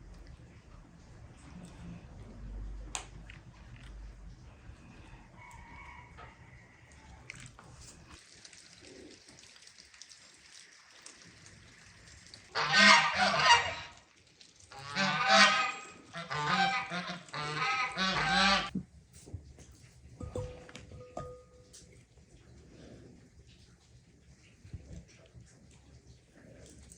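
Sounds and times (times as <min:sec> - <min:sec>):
geese honking: 0:12.5 - 0:14.0, 0:14.7 - 0:18.7.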